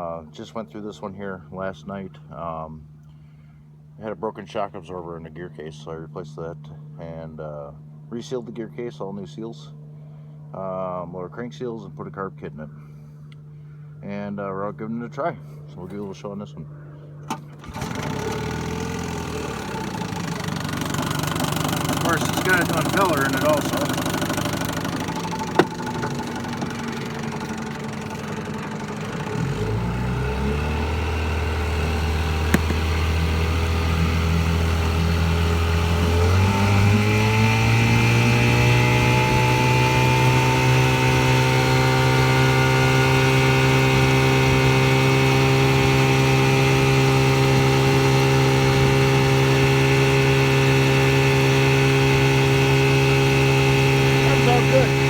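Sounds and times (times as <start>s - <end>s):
outboard motor running: 16.9s - 55.0s.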